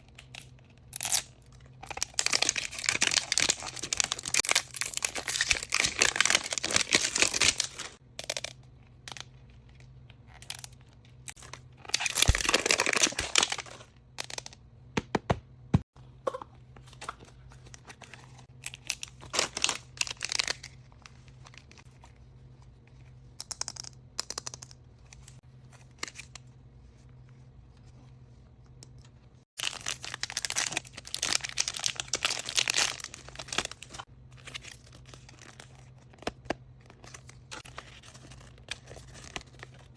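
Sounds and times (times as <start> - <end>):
wrapping tearing and crinkling: 0.3 - 8.4, 11.3 - 14.4, 18.4 - 21.8, 29.6 - 39.9.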